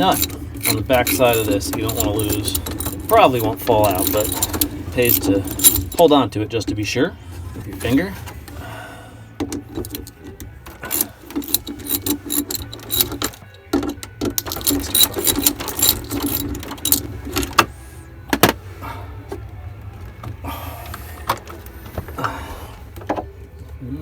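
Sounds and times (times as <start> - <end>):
metal parts clinking: 0.0 - 6.2, 9.6 - 17.7
steady low hum: 0.0 - 24.0.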